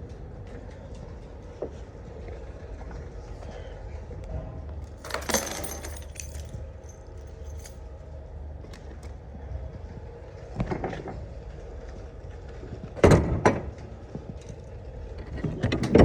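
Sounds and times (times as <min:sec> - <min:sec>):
small metal objects jangling: 0:04.9 - 0:07.8.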